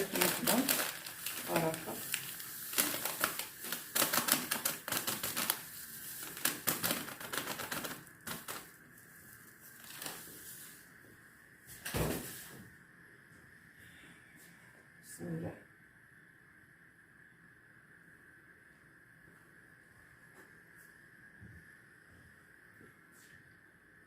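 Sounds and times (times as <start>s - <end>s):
dry grains clicking and rattling: 0.0s - 10.8s
grains rustling: 0.0s - 10.9s.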